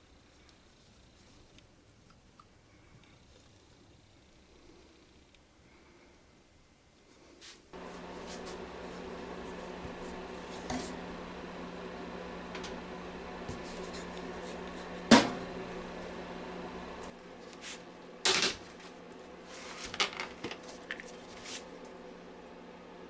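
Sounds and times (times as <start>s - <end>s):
low steady hum: 7.8s - 17.1s.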